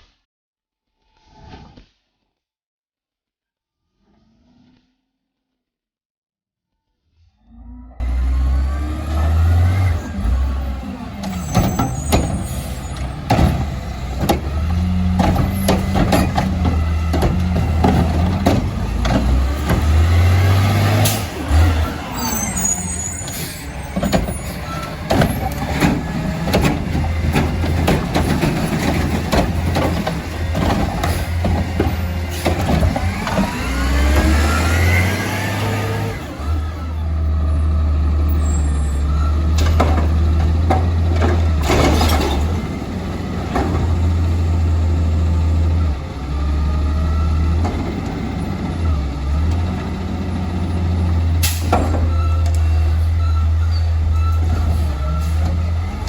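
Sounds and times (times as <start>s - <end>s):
hydraulic whine: 8.0s - 40.1s
diesel engine running: 8.0s - 56.0s
metallic clanks and knocks: 11.2s - 21.3s, 23.2s - 34.4s.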